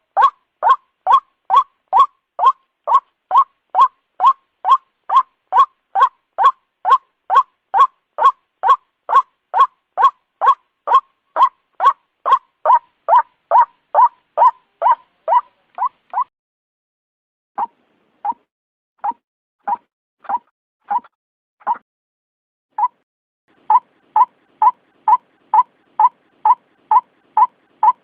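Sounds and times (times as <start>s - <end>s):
waterhen calling: 0.2s - 16.3s, 23.5s - 28.0s.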